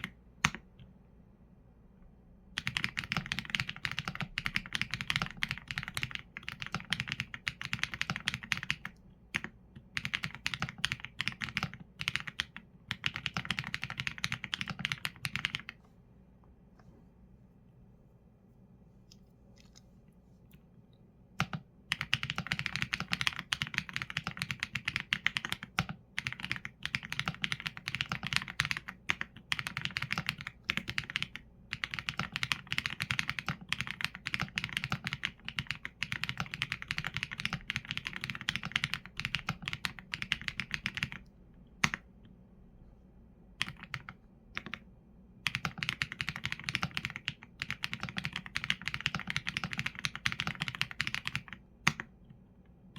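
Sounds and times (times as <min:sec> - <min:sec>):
mechanical keyboard typing: 0:02.6 - 0:15.8, 0:21.4 - 0:42.0, 0:43.6 - 0:44.8, 0:45.4 - 0:52.1.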